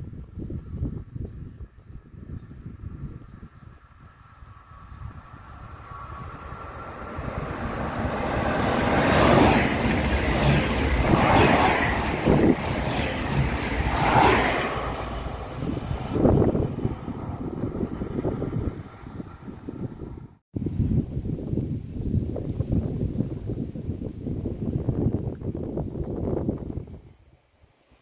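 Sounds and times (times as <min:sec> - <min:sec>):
train wheels rushing on rail: 0:04.7 - 0:18.2.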